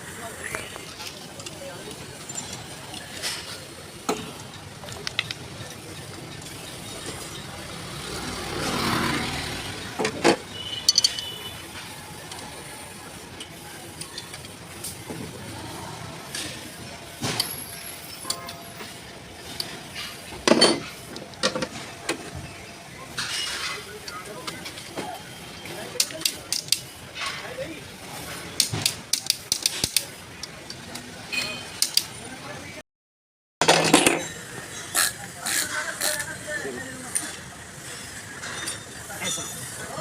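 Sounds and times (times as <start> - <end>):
metal tools clinking: 0.9 - 7.5, 10.6 - 11.5, 38.4 - 40.0.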